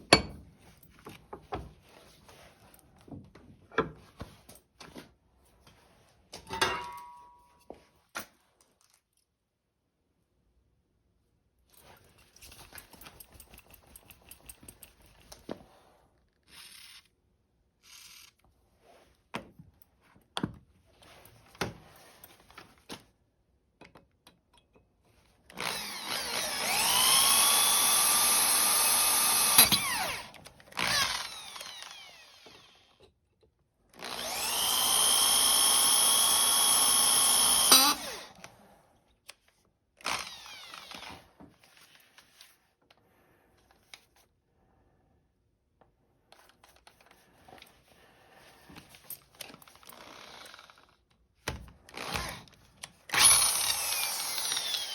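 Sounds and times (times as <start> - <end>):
electric drill whining: 16.5 - 17.1, 25.5 - 33.0, 34.0 - 38.4, 40.0 - 41.2, 49.7 - 51.0, 51.9 - 52.5, 53.1 - 54.9.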